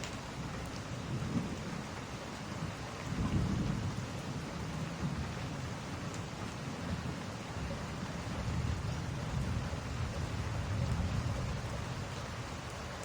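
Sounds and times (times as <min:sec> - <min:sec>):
steady rain: 0:00.0 - 0:13.0
thunder rumbling: 0:03.1 - 0:04.0, 0:08.2 - 0:12.6.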